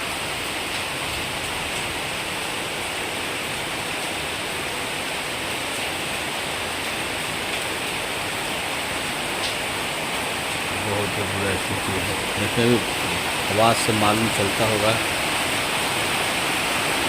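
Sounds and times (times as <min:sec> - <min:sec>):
heavy rain hiss: 0:00.0 - 0:17.0
raindrop ticks: 0:09.4 - 0:09.7.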